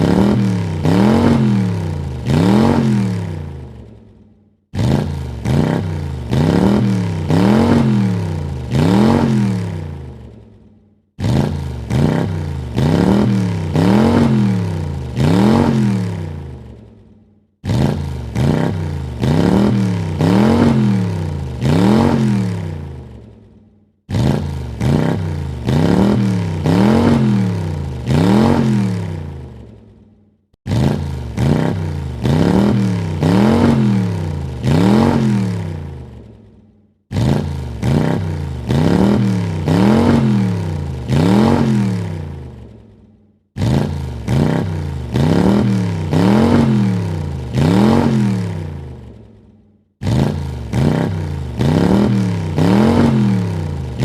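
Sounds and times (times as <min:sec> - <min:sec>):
car engine revving: 0:00.0 - 0:04.0, 0:04.7 - 0:10.4, 0:11.2 - 0:17.0, 0:17.6 - 0:23.4, 0:24.1 - 0:29.8, 0:30.6 - 0:36.4, 0:37.1 - 0:42.8, 0:43.6 - 0:49.3, 0:50.0 - 0:54.0.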